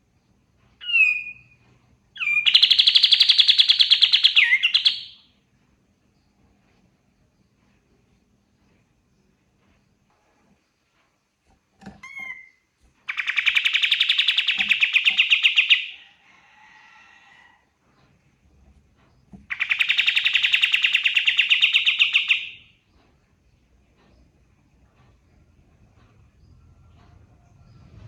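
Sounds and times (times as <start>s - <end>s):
bird chirping and trilling: 0.8s - 1.6s, 2.2s - 5.2s, 12.0s - 16.0s, 19.5s - 22.7s.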